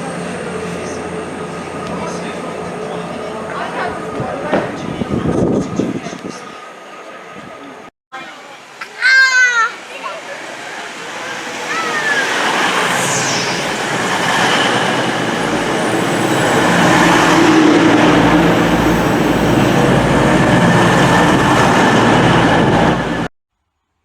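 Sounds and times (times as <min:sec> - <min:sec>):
train rail noise rushing: 0:10.1 - 0:23.3.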